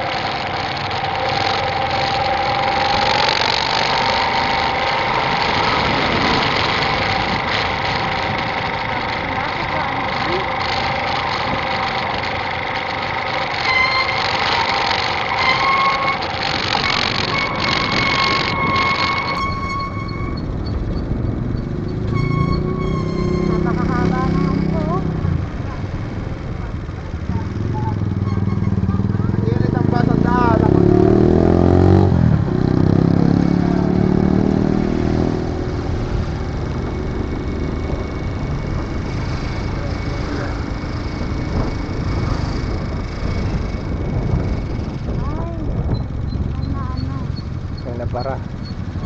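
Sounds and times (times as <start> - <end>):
motorcycle engine running: 0.0 - 49.0
rough road noise rumble: 0.0 - 49.0
steady whine: 0.0 - 49.0
wind rushing over microphone: 2.4 - 9.2, 16.0 - 22.1, 23.4 - 47.8.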